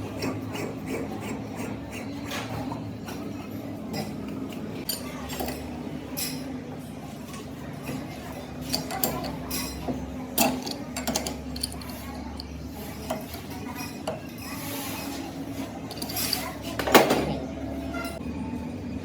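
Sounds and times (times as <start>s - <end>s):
metal tools clinking: 4.9s - 5.6s, 8.6s - 14.6s, 15.7s - 17.0s.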